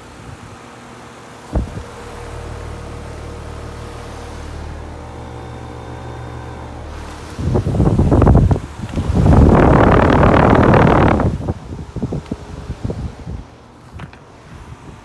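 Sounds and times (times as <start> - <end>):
compressor humming: 0.0 - 15.0
air rushing on microphone: 1.5 - 2.0, 7.1 - 13.6.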